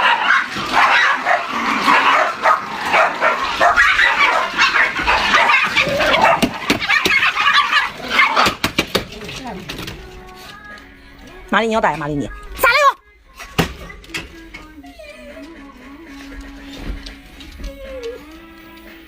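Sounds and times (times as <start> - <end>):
dog barking and yipping: 0.0 - 8.7.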